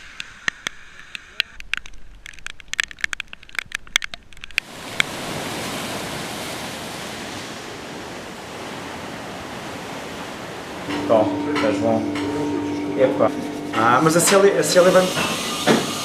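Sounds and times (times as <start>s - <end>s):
sharp clicks and crackles: 0.0s - 5.1s.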